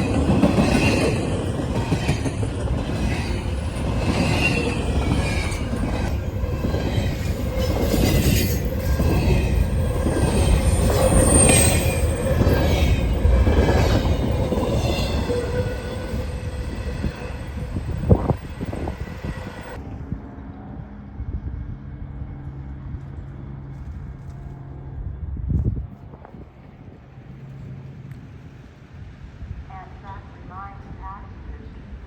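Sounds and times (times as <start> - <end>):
train rumbling over track: 0.0 - 32.0
wheel squeals: 3.2 - 19.8.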